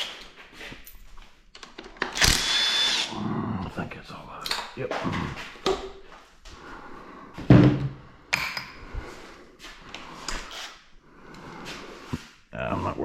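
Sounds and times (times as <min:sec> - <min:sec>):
heavy thump: 0:07.4 - 0:08.0.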